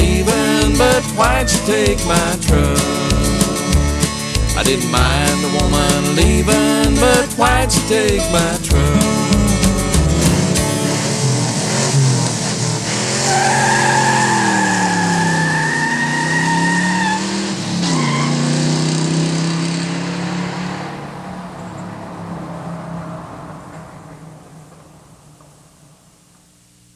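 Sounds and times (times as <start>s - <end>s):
truck engine revving: 0.0s - 25.5s
tires squealing: 9.0s - 25.4s.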